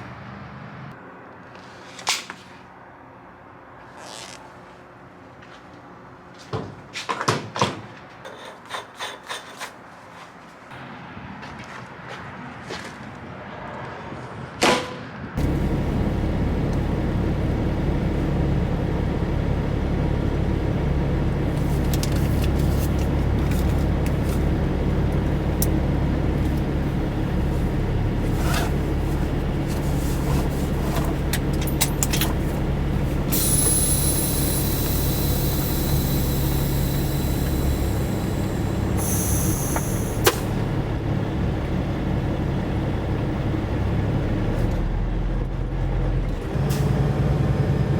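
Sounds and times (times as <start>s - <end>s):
diesel truck engine droning: 15.4s - 47.9s
air hissing: 33.2s - 40.6s.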